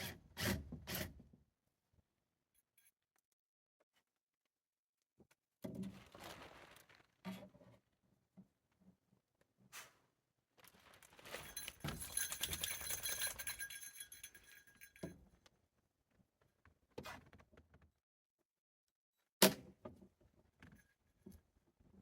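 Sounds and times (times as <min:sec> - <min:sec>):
metal parts jangling and clinking: 0:11.2 - 0:15.1.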